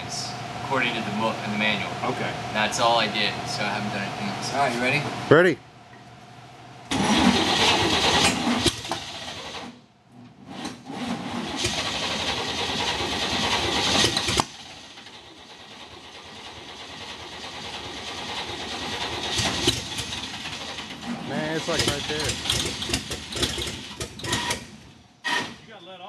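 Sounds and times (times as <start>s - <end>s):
engine cranking on starter: 6.9s - 9.8s, 10.4s - 25.6s.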